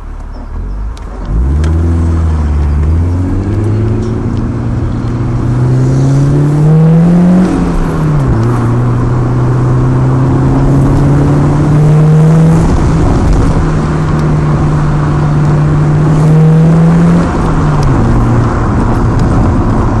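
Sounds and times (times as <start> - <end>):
vehicle engine idling and revving: 0.0 - 20.0.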